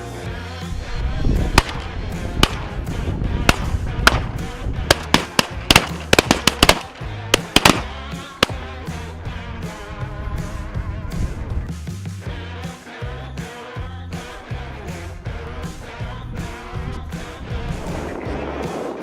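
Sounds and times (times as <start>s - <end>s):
background music: 0.0s - 19.0s
shotgun shots: 1.6s - 2.8s, 3.4s - 8.7s.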